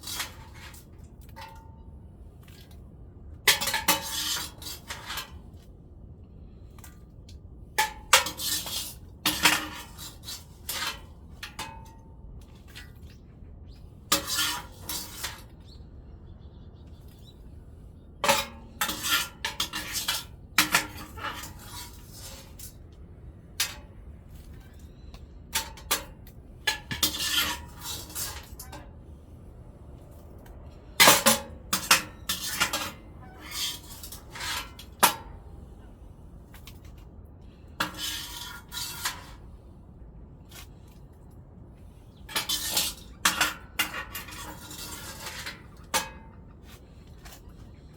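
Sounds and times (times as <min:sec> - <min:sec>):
metal tools clanking on stove: 0:18.2 - 0:22.6, 0:26.7 - 0:28.8, 0:31.0 - 0:35.3, 0:37.8 - 0:39.4, 0:42.2 - 0:46.4.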